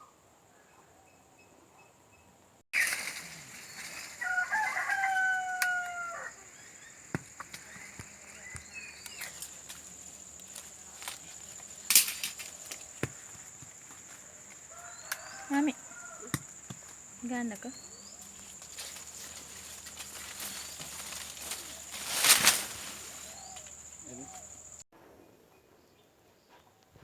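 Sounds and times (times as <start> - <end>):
rooster crowing: 3.4 - 9.1, 14.0 - 17.1.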